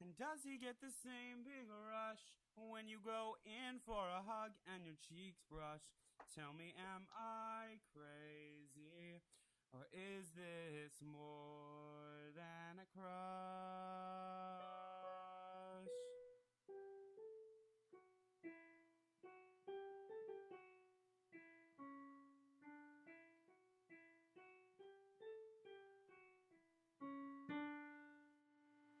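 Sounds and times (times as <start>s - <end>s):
solo piano notes: 14.2s - 29.0s.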